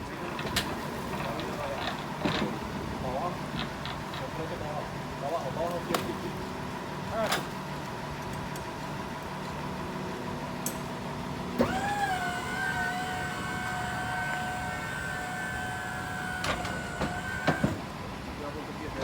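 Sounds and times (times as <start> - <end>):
small electric motor whining: 11.6 - 17.8.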